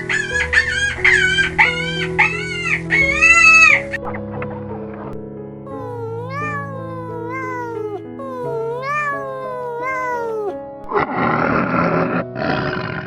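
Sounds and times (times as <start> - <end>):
background music: 0.0 - 13.0
cat meowing: 5.7 - 10.6.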